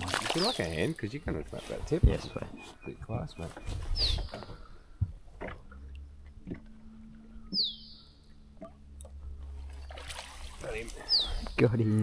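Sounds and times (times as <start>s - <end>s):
low steady hum: 0.0s - 12.0s
bird whistle: 3.6s - 4.3s, 7.4s - 8.2s, 11.1s - 11.4s.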